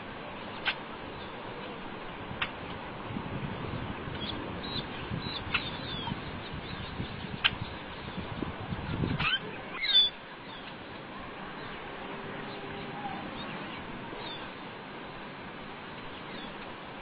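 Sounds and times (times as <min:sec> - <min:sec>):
steady outdoor hiss: 0:00.0 - 0:17.0
bird chirps: 0:04.2 - 0:07.7, 0:09.2 - 0:10.7.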